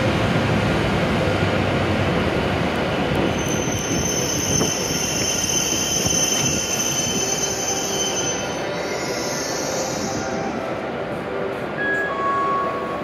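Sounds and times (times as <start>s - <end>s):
train rolling slowly: 0.0s - 13.0s
brake squeal: 3.4s - 10.4s.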